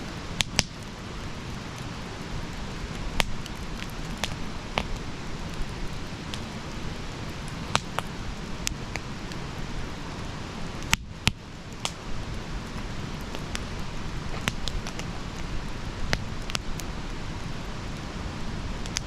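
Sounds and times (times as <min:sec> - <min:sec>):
fire hissing and rustling: 0:00.0 - 0:19.0
wood fire crackles and pops: 0:00.0 - 0:19.0.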